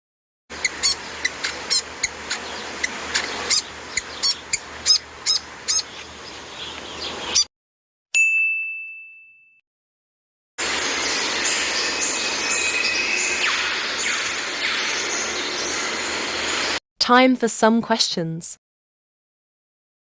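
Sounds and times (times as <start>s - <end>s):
bird chirping: 0.6s - 7.5s, 10.8s - 16.8s
ding ringing: 8.2s - 9.6s
background hiss: 10.6s - 16.8s.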